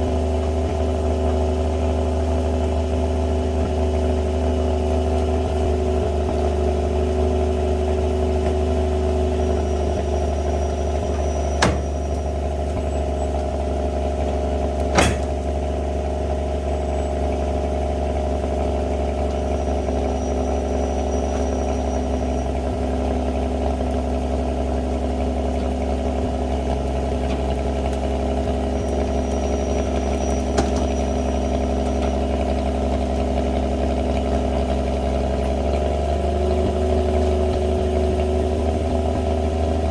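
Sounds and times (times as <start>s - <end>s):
truck engine running: 0.0s - 39.9s
sharp metal clanks: 11.5s - 12.3s, 14.9s - 15.6s.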